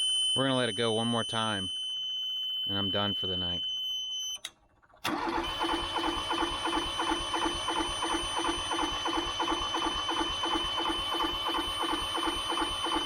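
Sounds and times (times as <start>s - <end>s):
diesel engine cranking: 4.5s - 13.0s.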